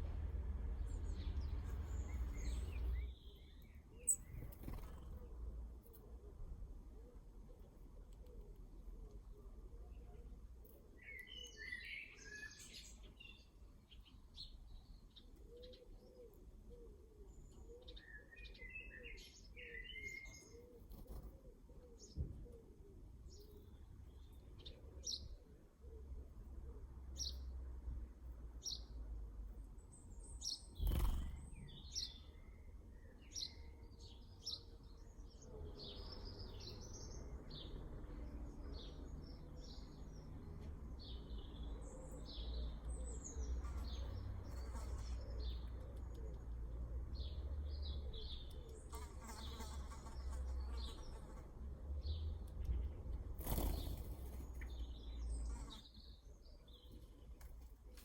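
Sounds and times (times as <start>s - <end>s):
low background rumble: 0.0s - 10.7s
birds chirping: 0.7s - 5.3s.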